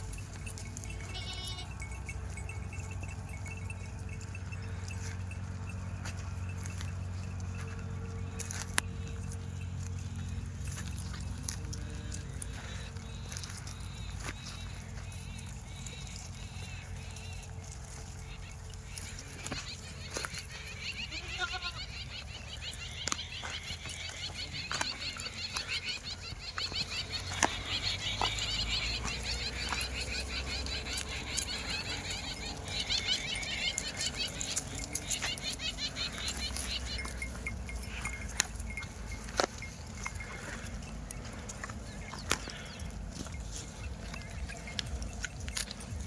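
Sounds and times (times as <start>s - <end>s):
sheep bleating: 0.8s - 2.0s, 18.2s - 39.3s.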